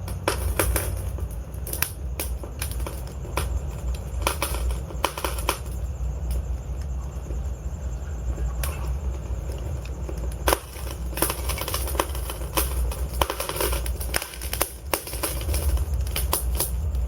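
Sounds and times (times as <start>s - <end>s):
sharp pops and snaps: 0.0s - 6.9s
log fire crackling: 0.0s - 17.0s
low rumble of flames: 0.0s - 17.0s.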